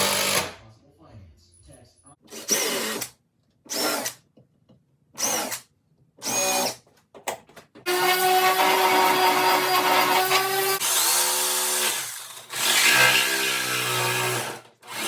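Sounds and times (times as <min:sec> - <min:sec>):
power drill whining: 0:00.0 - 0:00.4, 0:07.9 - 0:15.0.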